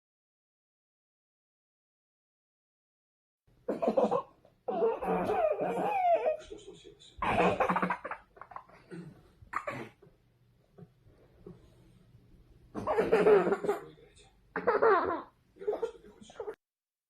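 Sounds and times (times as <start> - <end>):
child laughing: 3.8 - 6.5, 14.6 - 15.3
child coughing: 8.9 - 10.0, 12.8 - 13.8.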